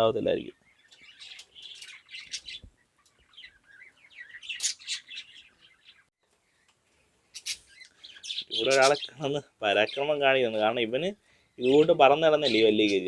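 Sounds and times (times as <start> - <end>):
parrots chirping: 0.5 - 6.7, 7.3 - 10.2.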